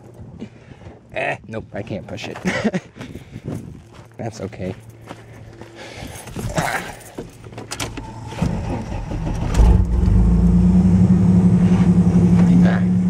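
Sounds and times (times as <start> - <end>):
truck engine revving: 8.0 - 13.0.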